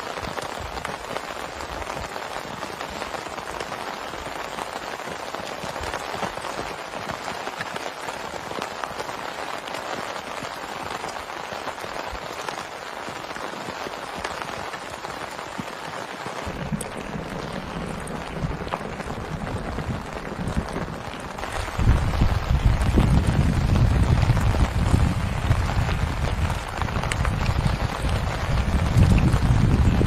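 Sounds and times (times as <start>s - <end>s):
heavy rain falling: 0.0s - 30.0s
low rumble: 16.4s - 30.0s.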